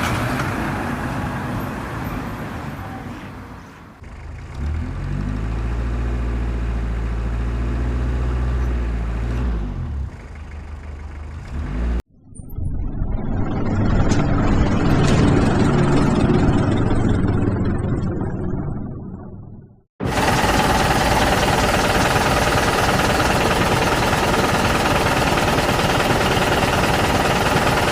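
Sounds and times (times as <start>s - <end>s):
rough engine rumble: 4.0s - 12.1s, 13.0s - 27.9s
logging truck engine running: 13.7s - 18.5s, 20.0s - 27.9s.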